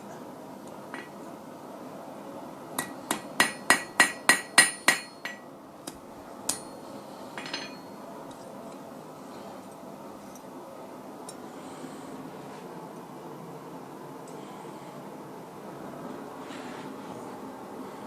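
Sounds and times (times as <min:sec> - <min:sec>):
hammer ringing on anvil: 0:02.8 - 0:05.5, 0:06.5 - 0:06.8, 0:07.4 - 0:08.0.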